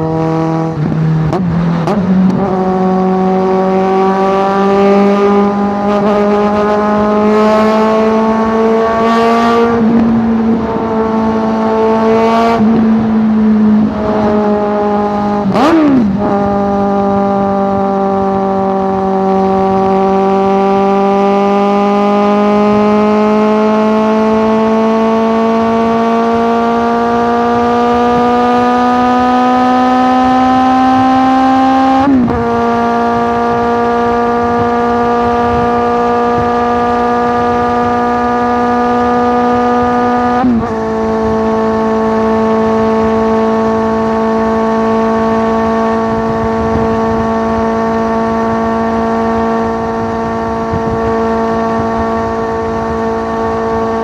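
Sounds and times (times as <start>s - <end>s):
motorcycle engine at high revs: 0.0s - 54.0s.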